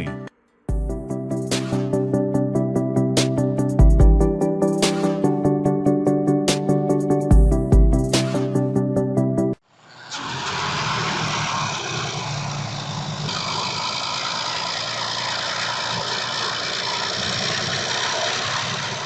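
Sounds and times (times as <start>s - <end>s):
background music: 0.0s - 9.6s
off-road vehicle engine running: 10.1s - 19.0s.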